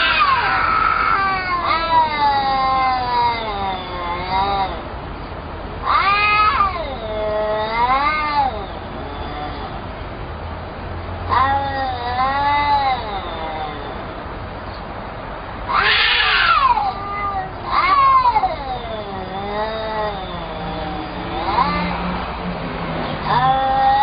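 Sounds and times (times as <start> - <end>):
cat meowing: 0.0 - 4.9, 5.8 - 9.8, 11.3 - 14.1, 15.7 - 22.3, 23.2 - 24.0.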